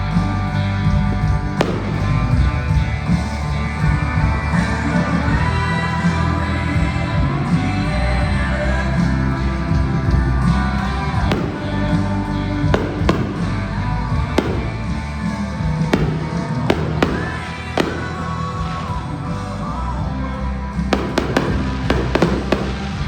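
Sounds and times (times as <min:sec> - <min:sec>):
loud music: 0:00.0 - 0:23.0
fireworks bangs: 0:01.5 - 0:03.4, 0:10.4 - 0:19.2, 0:20.9 - 0:23.0.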